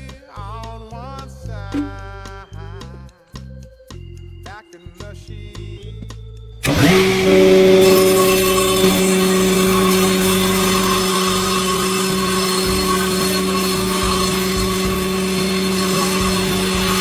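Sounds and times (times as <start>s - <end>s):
electric motor humming: 6.6s - 17.0s.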